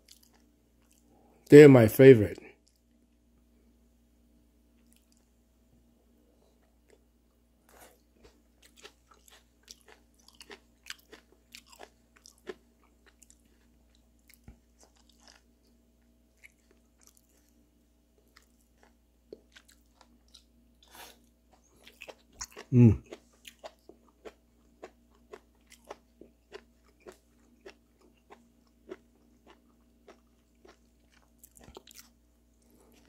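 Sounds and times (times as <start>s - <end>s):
wet chewing clicks and crunches: 0.0s - 1.1s, 7.8s - 17.6s, 18.2s - 33.0s.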